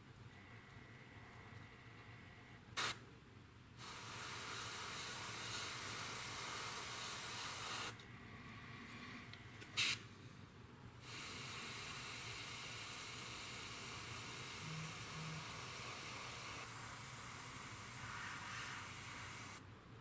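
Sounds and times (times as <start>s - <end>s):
airbrush spraying hiss: 2.8s - 3.0s, 3.8s - 8.0s, 9.8s - 10.0s, 11.0s - 19.6s
sharp puff of air: 2.8s - 3.0s, 9.8s - 10.0s, 11.0s - 19.6s.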